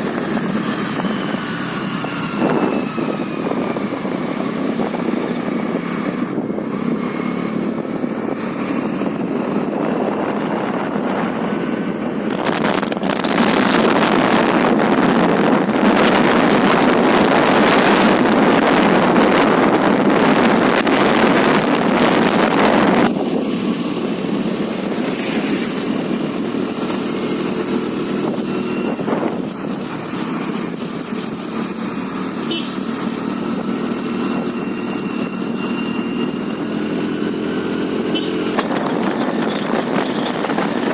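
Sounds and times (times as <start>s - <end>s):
scooter engine and road noise: 0.0s - 40.9s
loud rushing noise: 4.6s - 32.2s.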